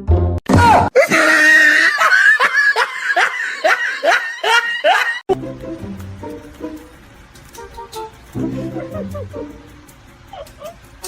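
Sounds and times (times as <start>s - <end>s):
music: 0.0s - 0.4s, 5.3s - 11.0s
person laughing hard: 0.9s - 5.2s, 8.6s - 9.5s, 10.3s - 10.8s.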